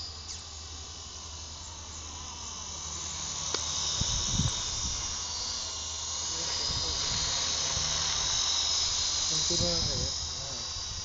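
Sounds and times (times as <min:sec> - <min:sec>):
model helicopter whine: 0:00.0 - 0:11.0
wind rumbling on microphone: 0:04.0 - 0:05.2, 0:09.3 - 0:11.0.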